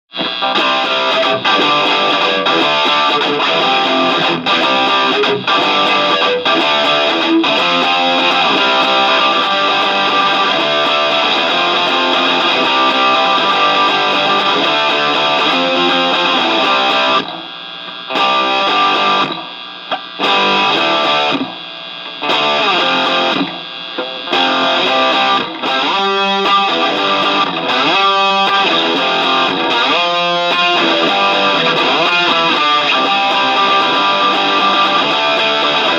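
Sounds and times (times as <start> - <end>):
distorted electric guitar: 0.1 - 35.9
rock band playing: 0.4 - 17.2, 24.4 - 35.9.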